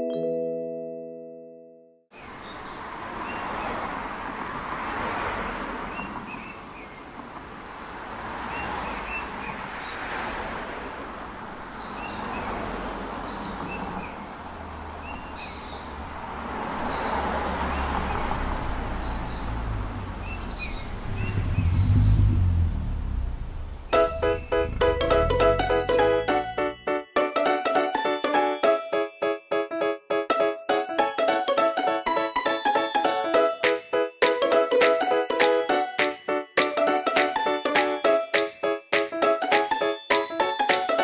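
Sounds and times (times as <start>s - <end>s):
small birds chirping: 2.2s - 5.2s, 5.9s - 10.2s, 10.8s - 16.2s, 19.0s - 22.8s, 23.6s - 26.8s
rushing outdoor background: 2.2s - 41.0s
low rumble: 20.9s - 26.3s.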